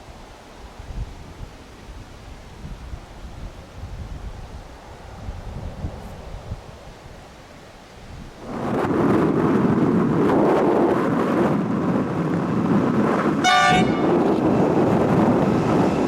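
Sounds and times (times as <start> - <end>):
freight train passing: 4.0 - 9.8, 11.7 - 16.0
train horn toot: 13.4 - 14.4.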